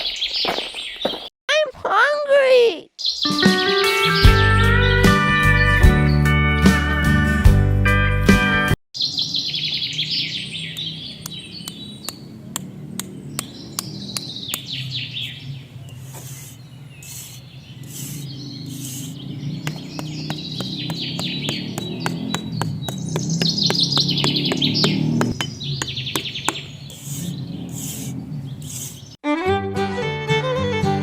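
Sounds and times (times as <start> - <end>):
small birds chirping: 0.0 - 1.3, 2.8 - 5.0, 9.0 - 29.2
sharp clicks or taps: 10.8 - 14.7, 19.6 - 27.2.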